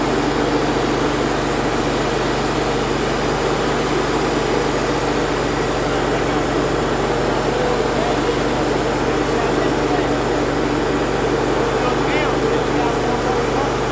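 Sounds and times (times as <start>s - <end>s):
sawmill engine running: 0.0s - 13.9s.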